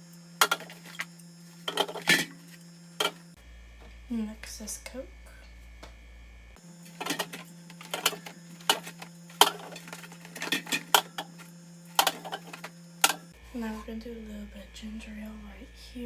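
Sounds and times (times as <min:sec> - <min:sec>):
soda cans clinking on fridge shelf: 0:00.4 - 0:03.2, 0:07.0 - 0:13.3.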